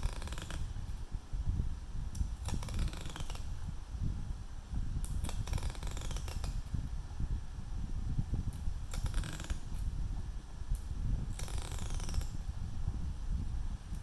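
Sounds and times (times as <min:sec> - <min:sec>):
hand tools clicking and scraping: 0:00.0 - 0:00.7.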